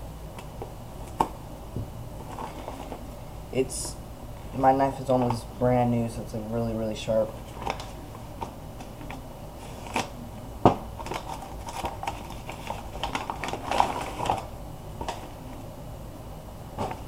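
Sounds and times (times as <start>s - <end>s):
scraping and rustling: 2.2s - 3.0s.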